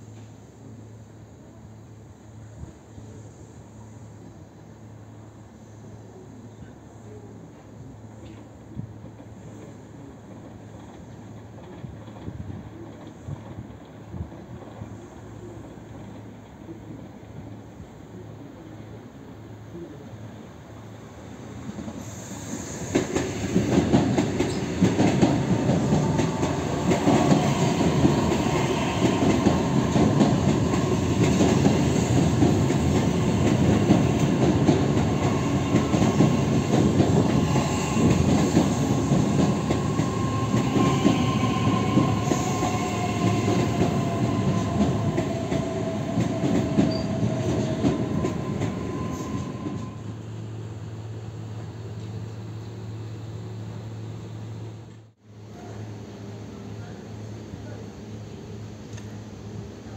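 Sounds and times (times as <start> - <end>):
train wheels rumbling on rails: 7.1 - 18.2, 21.6 - 50.6.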